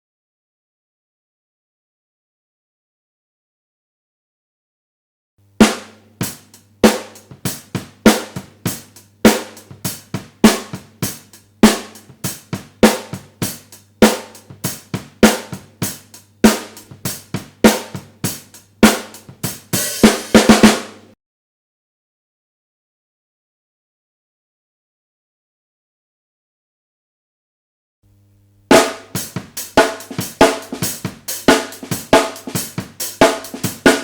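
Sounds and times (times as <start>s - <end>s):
drum fill: 5.5s - 21.2s, 28.7s - 34.0s
bass drum: 5.6s - 21.2s, 28.7s - 34.0s
snare drum: 5.6s - 21.2s, 28.7s - 34.0s.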